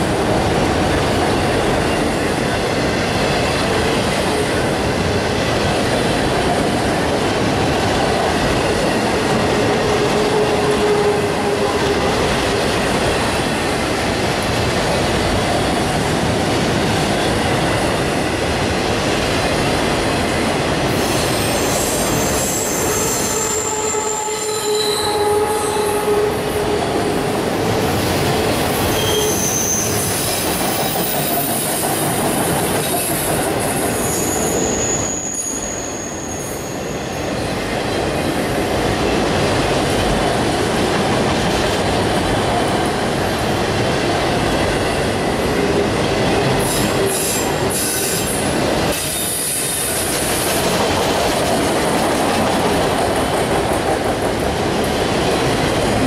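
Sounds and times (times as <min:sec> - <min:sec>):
train wheels clattering on track: 0:00.0 - 0:56.0
high-pitched wheel squeals: 0:21.1 - 0:26.4, 0:28.9 - 0:30.3, 0:34.0 - 0:37.2.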